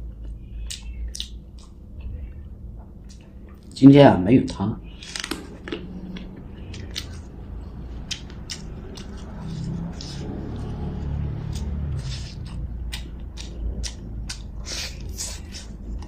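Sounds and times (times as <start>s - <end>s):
low steady background rumble: 0.0s - 16.0s
chewing: 5.0s - 16.0s.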